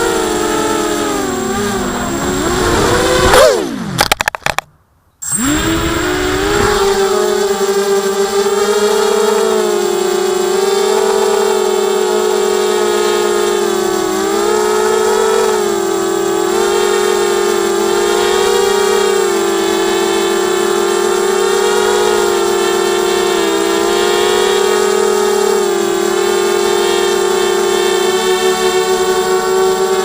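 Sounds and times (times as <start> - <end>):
drone motors whining: 0.0 - 30.0.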